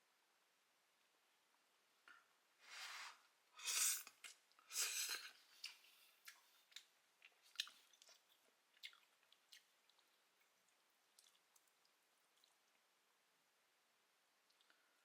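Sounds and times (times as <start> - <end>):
wet chewing: 4.0 - 12.7.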